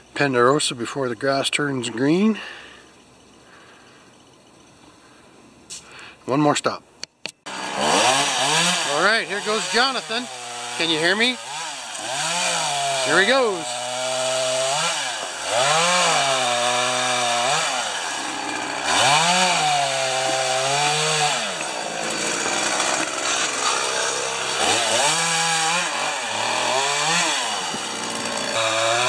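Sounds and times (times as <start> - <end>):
chainsaw engine revving: 7.5 - 29.0.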